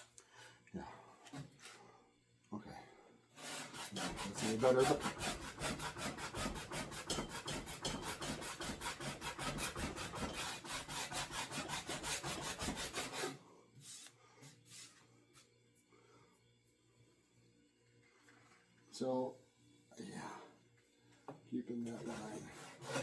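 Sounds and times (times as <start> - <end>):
rasp filing wooden handle: 3.4 - 13.4, 21.8 - 23.0.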